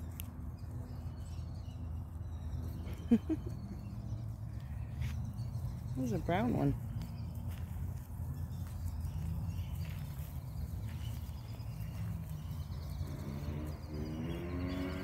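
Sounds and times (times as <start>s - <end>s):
faint footsteps: 4.5s - 13.8s.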